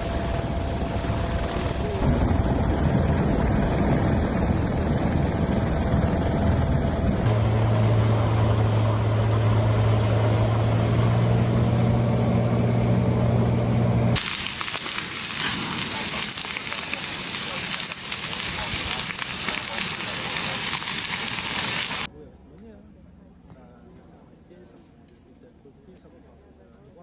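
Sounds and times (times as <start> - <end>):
helicopter engine and rotor: 0.0 - 13.6
loud low hum with tones: 0.0 - 14.2.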